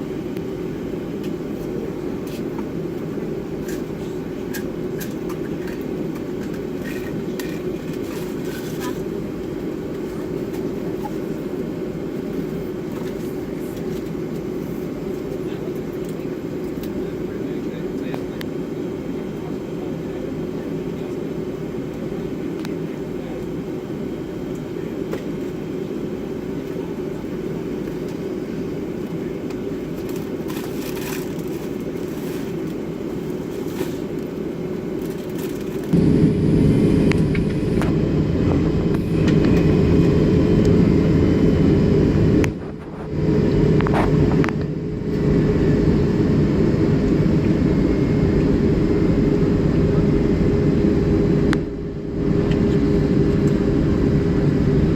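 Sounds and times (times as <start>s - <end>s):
jet engine cabin rumble: 0.0s - 54.9s.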